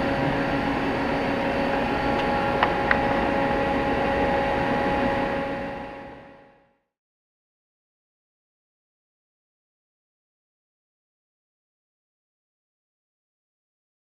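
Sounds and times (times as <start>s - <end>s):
machine hum with tones: 0.0s - 6.9s.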